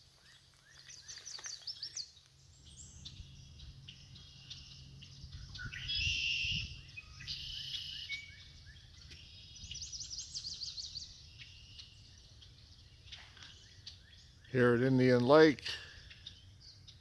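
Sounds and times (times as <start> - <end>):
birds chirping and whistling: 0.7 - 17.0
rapid bird trill: 2.6 - 17.0.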